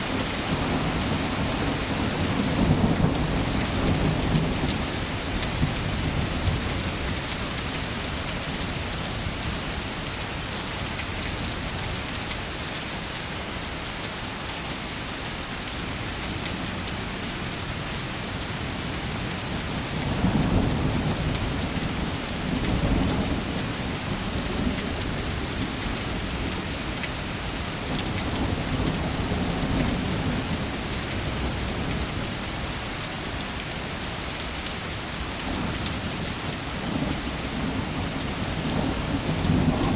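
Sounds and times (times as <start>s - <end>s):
steady rain falling: 0.0s - 39.9s
thunder rumbling: 35.6s - 39.9s.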